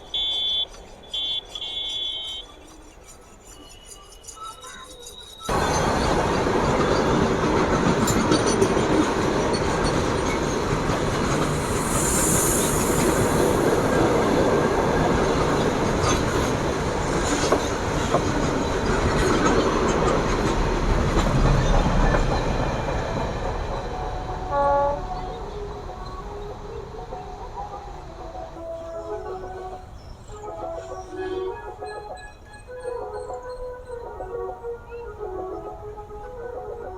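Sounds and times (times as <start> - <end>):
train horn blast: 0.0 - 2.5, 23.9 - 26.6
train wheels rumbling on rails: 0.0 - 34.0
clicking over rail joints: 14.2 - 23.9.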